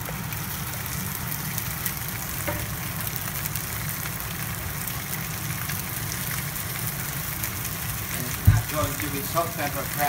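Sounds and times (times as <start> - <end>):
food sizzling in hot oil: 0.0 - 10.0
low steady rumble: 0.0 - 10.0.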